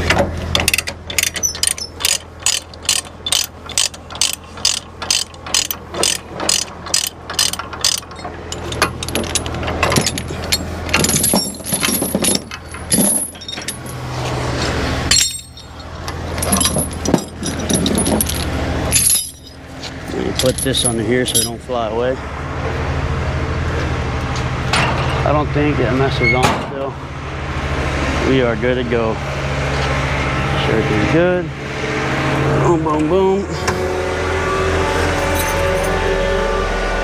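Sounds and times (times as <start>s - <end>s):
metal clanks and rattles: 0.0s - 21.9s, 24.7s - 25.3s
diesel truck idling: 1.8s - 26.2s.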